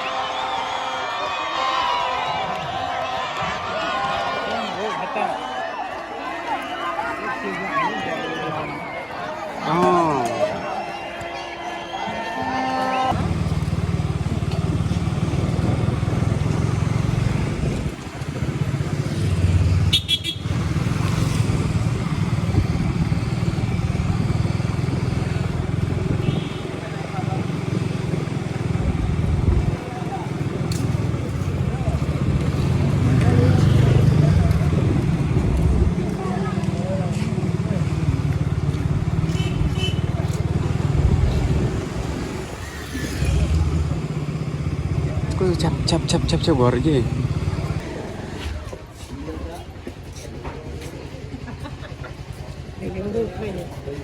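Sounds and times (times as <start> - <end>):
short horn beep: 10.5 - 13.2
motorcycle engine running: 13.1 - 54.0.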